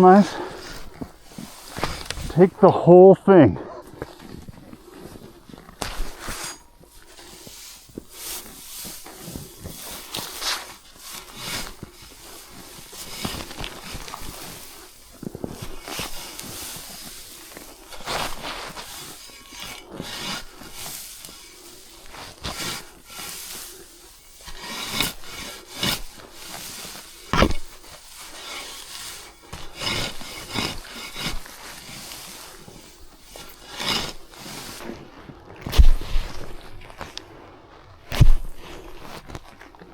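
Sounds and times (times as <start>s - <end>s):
hay rustling and scraping: 0.0s - 3.4s, 4.0s - 39.8s.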